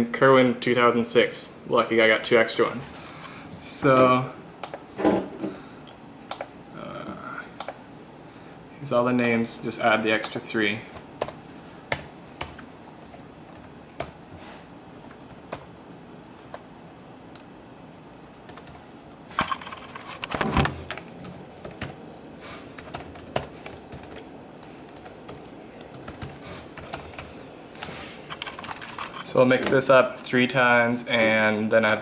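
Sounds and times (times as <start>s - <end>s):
keyboard typing: 10.9s - 14.2s, 14.9s - 15.7s, 16.4s - 16.6s, 18.1s - 18.8s, 19.4s - 22.0s, 22.8s - 27.4s, 28.3s - 29.8s.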